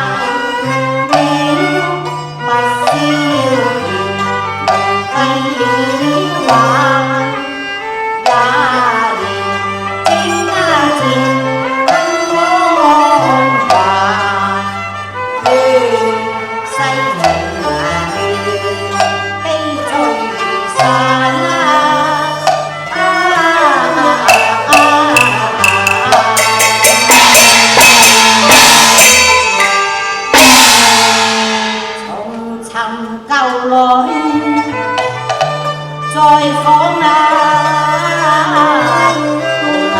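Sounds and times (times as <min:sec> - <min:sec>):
percussion strikes: 0:00.0 - 0:39.9
melody instruments over bass: 0:24.2 - 0:28.9
ringing cymbal crash: 0:24.3 - 0:32.4.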